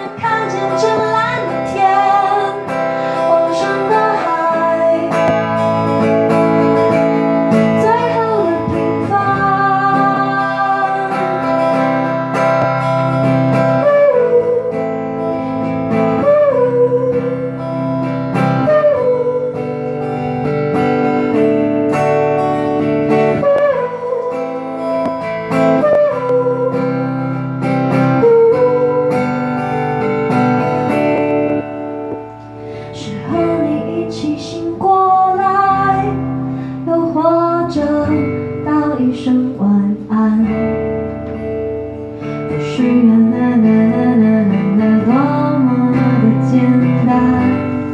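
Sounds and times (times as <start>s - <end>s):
person singing: 0.0s - 6.2s, 7.6s - 20.0s, 32.9s - 40.8s, 42.5s - 47.9s
acoustic guitar strumming: 0.0s - 47.9s.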